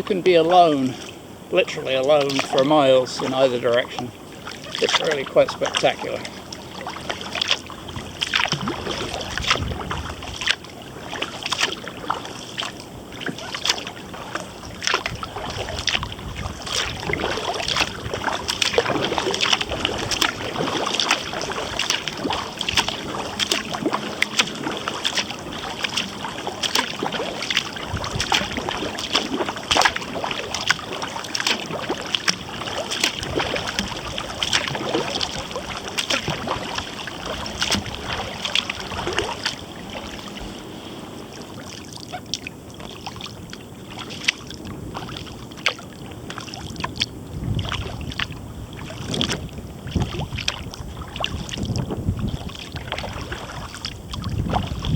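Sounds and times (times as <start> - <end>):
kayak paddle splashing water: 0.0 - 54.9
water dripping: 3.8 - 39.6.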